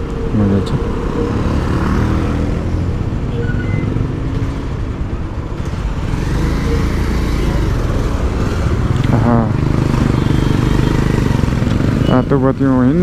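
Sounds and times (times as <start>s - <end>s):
road noise: 0.0s - 13.0s
motorcycle engine running: 5.6s - 12.3s.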